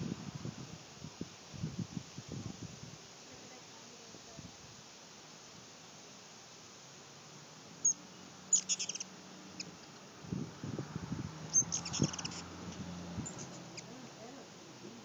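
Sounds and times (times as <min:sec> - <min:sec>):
hummingbird chip calls: 0:07.8 - 0:10.0, 0:11.5 - 0:15.0.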